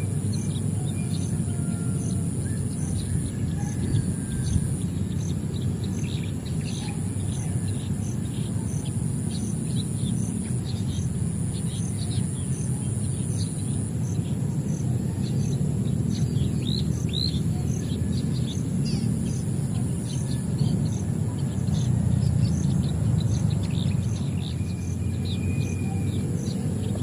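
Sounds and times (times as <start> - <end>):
high insect drone: 0.0 - 27.0
small birds chirping: 0.0 - 27.0.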